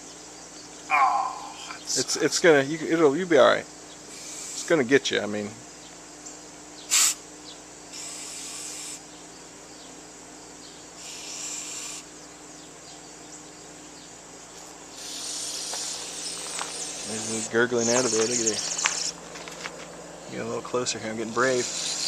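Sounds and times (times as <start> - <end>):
aerosol spray hissing: 6.9 - 7.2, 15.0 - 19.2.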